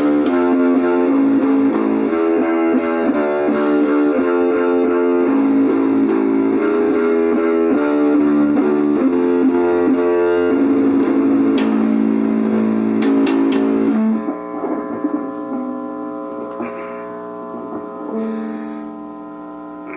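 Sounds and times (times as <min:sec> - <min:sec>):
guitar music: 0:00.0 - 0:19.9.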